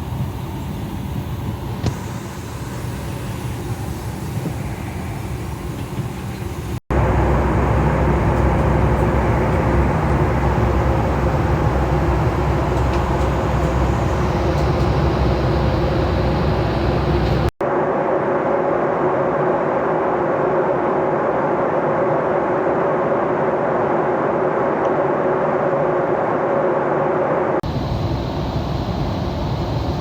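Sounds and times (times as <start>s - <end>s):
vehicle rumble from inside: 5.8s - 17.6s.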